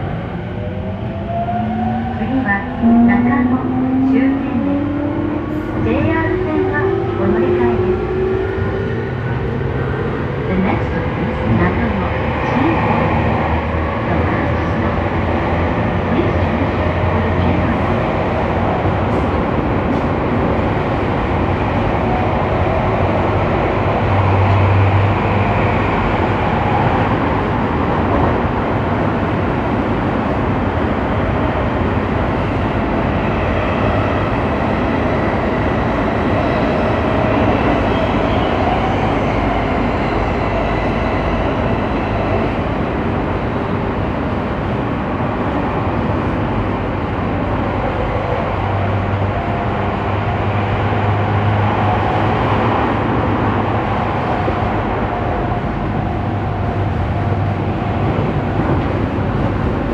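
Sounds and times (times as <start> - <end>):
wheels rumbling on rail: 0.0 - 59.9.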